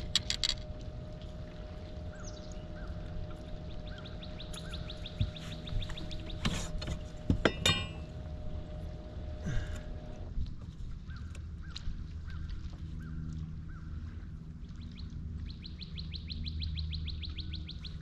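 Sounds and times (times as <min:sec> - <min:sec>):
steady hum: 0:00.0 - 0:18.0
birds chirping: 0:01.6 - 0:08.1.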